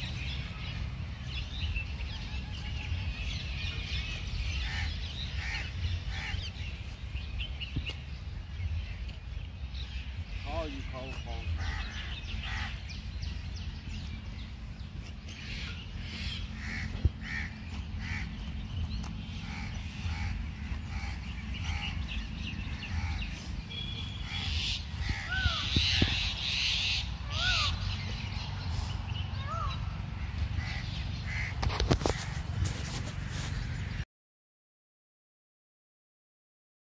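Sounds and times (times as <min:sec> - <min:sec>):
rising and falling bird calls: 0:00.0 - 0:33.7
birds cawing: 0:01.5 - 0:08.0, 0:09.8 - 0:14.4, 0:15.3 - 0:32.8.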